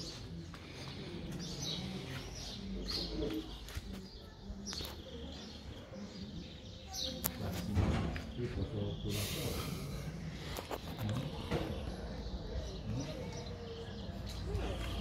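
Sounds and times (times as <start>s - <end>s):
low street background: 0.0s - 15.0s
small birds chirping: 0.0s - 15.0s.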